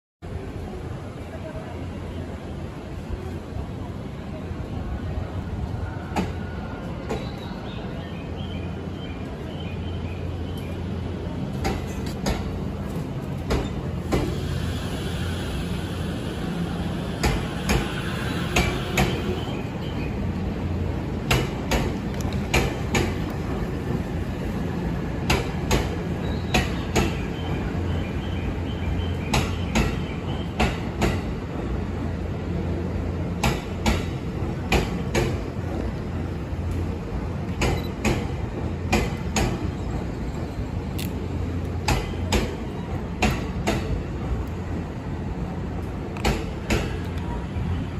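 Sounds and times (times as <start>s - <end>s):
train rolling past: 0.2s - 47.9s.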